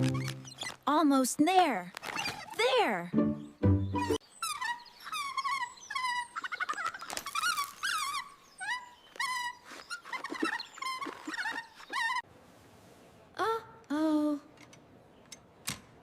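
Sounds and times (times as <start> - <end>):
monkey high-pitched squeaks: 0.0 - 0.8, 2.0 - 2.6, 4.0 - 12.2.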